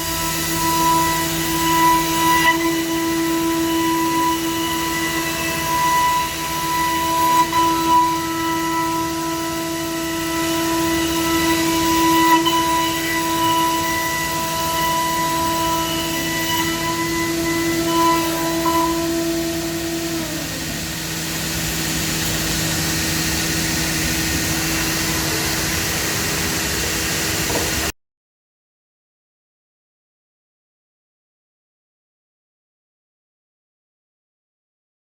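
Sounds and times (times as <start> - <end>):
machine spindle whining: 0.0 - 27.9.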